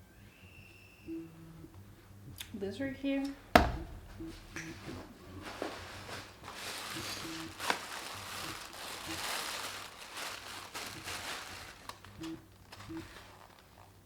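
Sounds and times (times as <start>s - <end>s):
crinkling handling noise: 4.3s - 14.0s.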